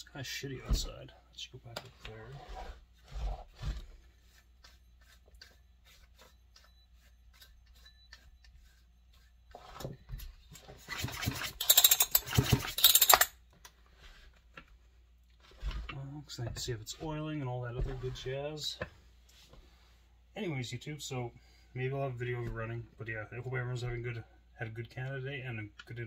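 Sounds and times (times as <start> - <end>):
chainsaw parts clicking and knocking: 11.6 - 13.3.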